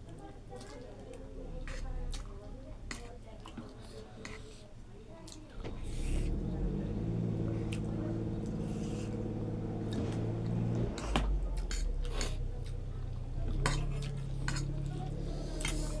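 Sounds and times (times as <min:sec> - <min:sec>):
steady low hum: 0:05.6 - 0:16.0.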